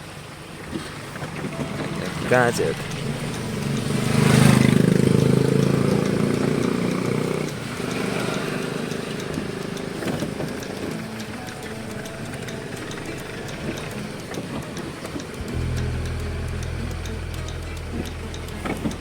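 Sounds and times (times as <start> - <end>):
diesel truck engine running: 1.5 - 19.0.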